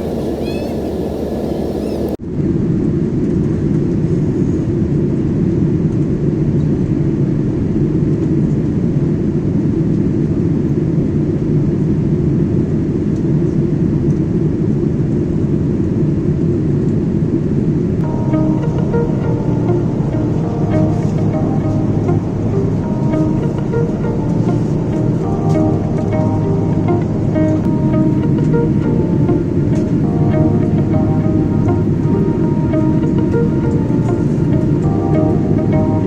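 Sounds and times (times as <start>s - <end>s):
airliner engine rumbling: 0.0s - 2.2s, 18.0s - 36.0s.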